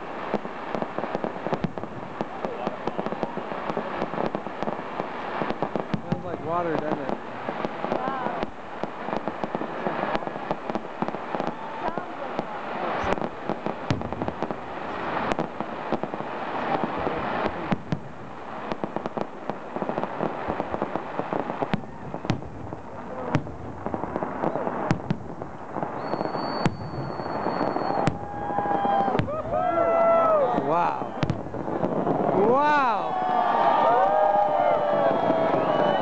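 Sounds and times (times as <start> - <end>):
fireworks bursting with bangs: 0.0 - 36.0
fireworks crackling: 0.0 - 36.0
high steady whistle: 25.9 - 29.4, 30.7 - 32.0, 34.4 - 36.0.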